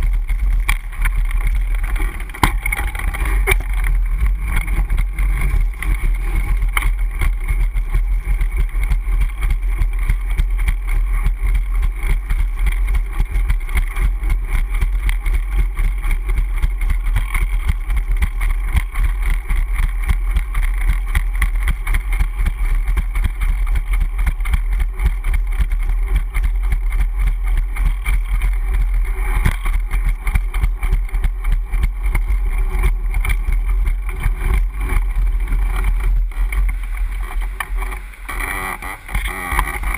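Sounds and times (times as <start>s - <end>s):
bicycle road rumble and rattle: 0.0s - 39.9s.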